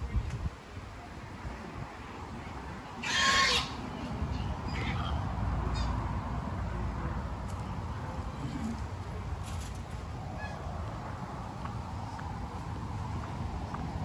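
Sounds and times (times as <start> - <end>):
bird calling harshly: 3.0 - 3.8.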